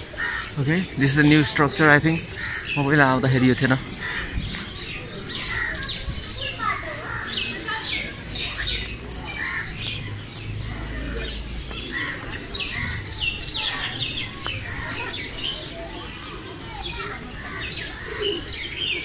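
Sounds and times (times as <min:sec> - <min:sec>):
birds chirping and squawking: 0:00.0 - 0:19.0.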